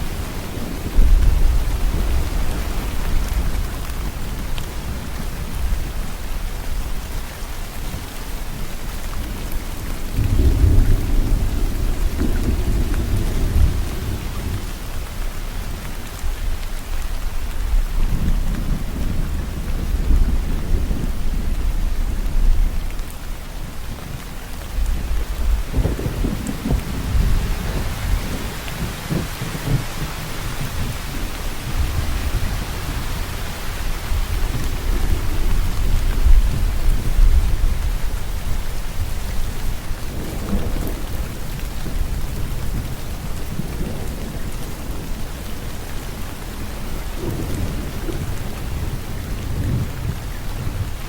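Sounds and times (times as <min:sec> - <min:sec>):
steady rain: 0:00.0 - 0:51.0
distant thunder rumbling: 0:09.2 - 0:15.9, 0:24.1 - 0:51.0.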